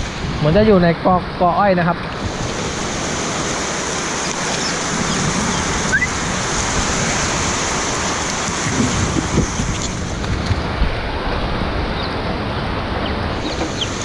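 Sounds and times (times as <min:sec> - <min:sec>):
heavy rain: 0:00.0 - 0:14.0
high rising chirp: 0:04.1 - 0:06.2.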